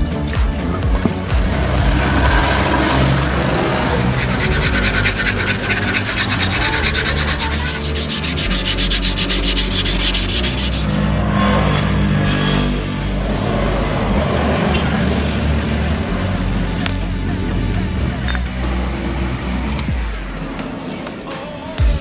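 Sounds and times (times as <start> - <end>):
rhythmic sanding strokes: 0.0 - 12.2.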